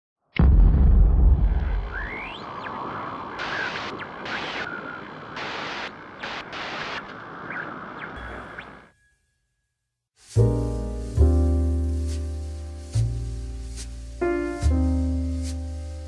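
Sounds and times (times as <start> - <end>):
loud boom: 0.4 - 2.7
rushing hissing noise: 1.9 - 7.5, 10.2 - 16.0
bursts of bright hiss: 2.1 - 8.5, 10.2 - 16.0.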